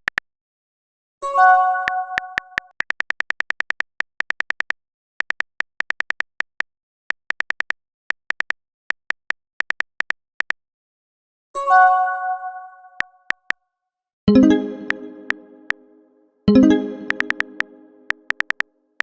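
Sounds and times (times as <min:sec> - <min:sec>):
keyboard typing clicks: 0:14.3 - 0:15.8, 0:16.5 - 0:18.6
message chime: 0:14.3 - 0:18.3.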